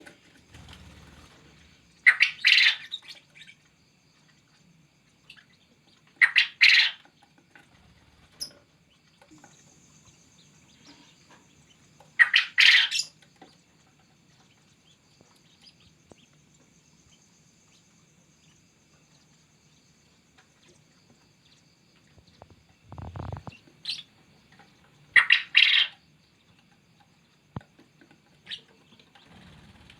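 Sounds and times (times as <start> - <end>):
quail crowing: 12.2 - 13.1, 22.3 - 24.0, 25.1 - 25.9.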